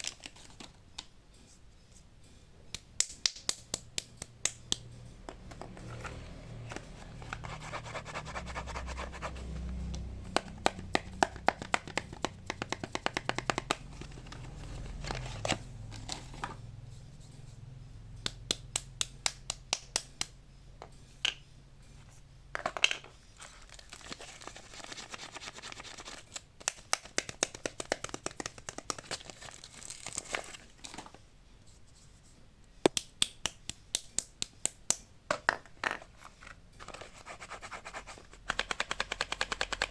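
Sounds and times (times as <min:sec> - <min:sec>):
clicks and taps on packaging: 0:10.0 - 0:14.5, 0:26.4 - 0:29.3, 0:38.4 - 0:39.9
wrappers crinkling and tearing: 0:23.5 - 0:26.4, 0:29.0 - 0:31.0.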